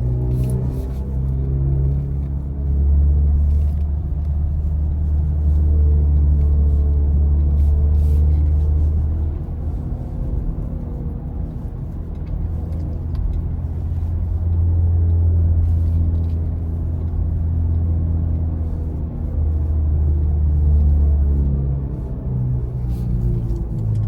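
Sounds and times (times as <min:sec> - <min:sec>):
electric car road rumble: 0:00.0 - 0:24.0.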